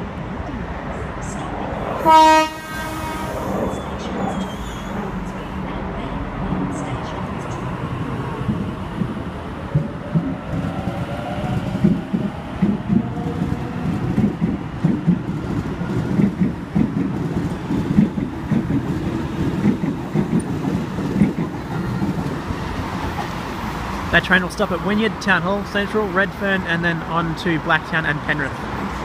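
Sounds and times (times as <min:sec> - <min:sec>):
train wheels clattering over rail joints: 0:11.4 - 0:22.4.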